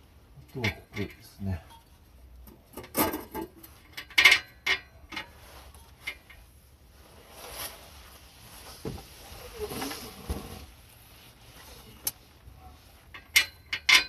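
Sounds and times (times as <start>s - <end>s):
soft scraping: 5.3s - 13.1s
metal tools clinking: 13.1s - 14.0s.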